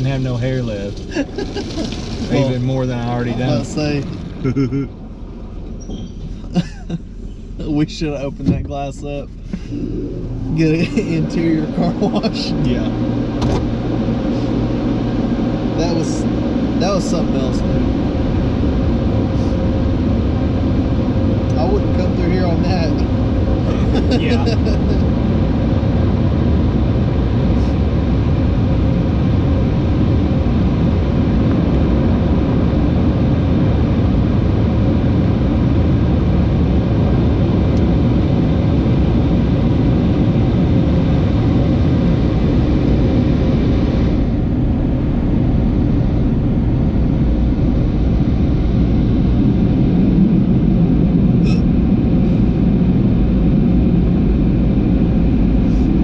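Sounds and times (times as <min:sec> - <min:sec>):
car wash rushing noise: 0:00.0 - 0:05.5, 0:06.3 - 0:27.8
faint motor hum: 0:00.0 - 0:56.0.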